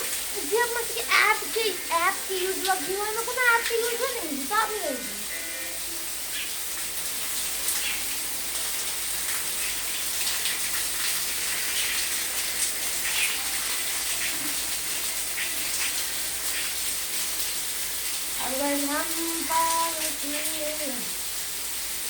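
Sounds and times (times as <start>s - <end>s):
water drops splashing: 0.0s - 5.3s
rain falling: 0.0s - 22.0s.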